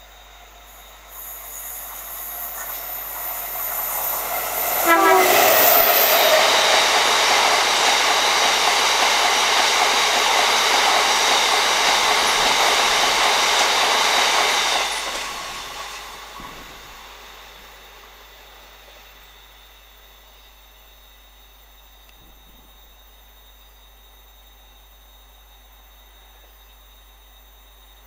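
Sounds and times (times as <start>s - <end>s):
diesel locomotive passing: 0.0s - 19.7s.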